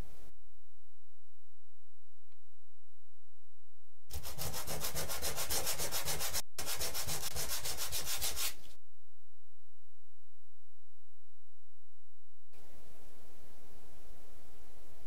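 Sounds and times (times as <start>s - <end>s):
wood being sanded: 4.1s - 8.6s.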